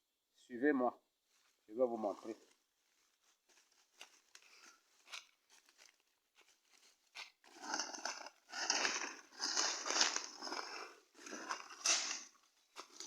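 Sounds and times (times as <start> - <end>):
footsteps crunching dry leaves: 2.2 - 7.8.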